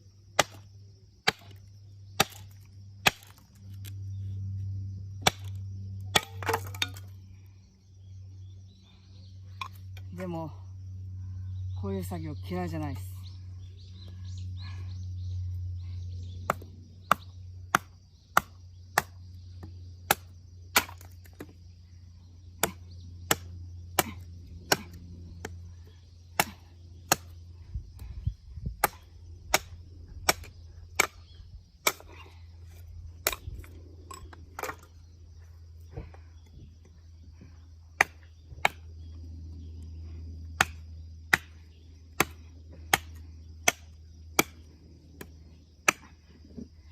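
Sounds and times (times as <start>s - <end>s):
low hum: 0.0s - 11.9s, 13.2s - 46.9s
firewood splitting knocks: 2.2s - 3.4s, 5.2s - 7.1s, 16.5s - 21.6s, 33.2s - 34.9s.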